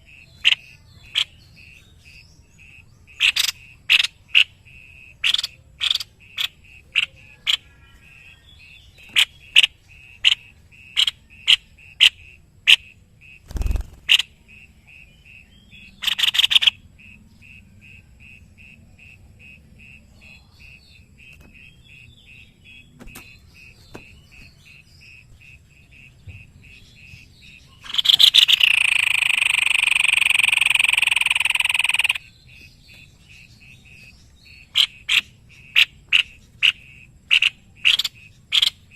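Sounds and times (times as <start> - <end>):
loud buzzy bird call: 2.6 - 18.8, 25.1 - 32.3
bird calling pulsed notes: 19.8 - 38.9.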